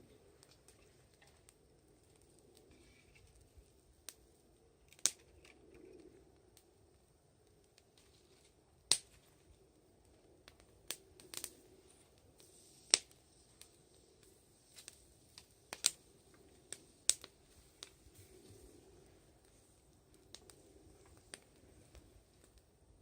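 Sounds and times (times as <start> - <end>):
faint hiss: 0.0 - 23.0
wood fire crackling: 0.0 - 23.0.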